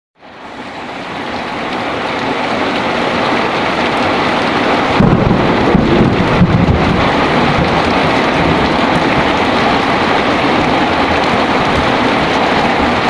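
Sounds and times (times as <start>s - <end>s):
heavy rain falling: 0.2s - 13.0s
low thunder rumble: 4.6s - 13.0s.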